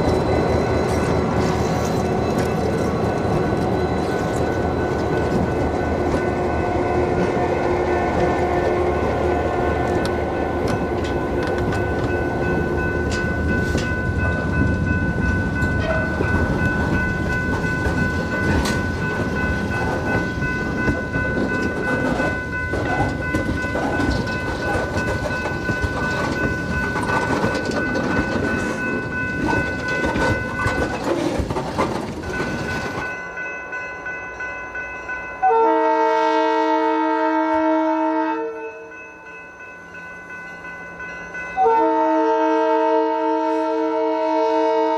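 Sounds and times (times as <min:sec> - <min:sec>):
train wheels clattering on rails: 0:00.0 - 0:33.5
locomotive air horn blast: 0:35.4 - 0:38.6, 0:41.6 - 0:44.9.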